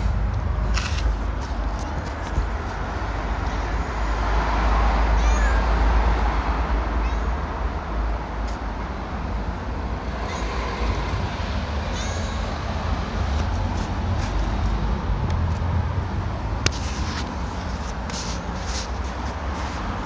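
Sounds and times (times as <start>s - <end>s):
low rumble: 0.0s - 3.4s, 9.9s - 18.0s
cat meowing: 3.3s - 4.2s, 4.8s - 5.9s, 7.0s - 7.4s, 10.2s - 10.7s, 11.8s - 12.6s.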